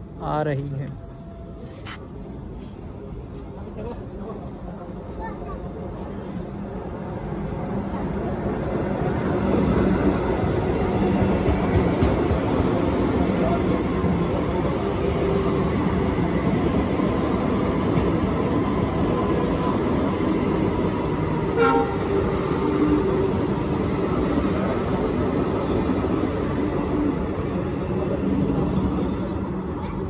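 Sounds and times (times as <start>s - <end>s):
wheels rumbling on rails: 2.6s - 30.0s
train horn toot: 21.5s - 22.1s.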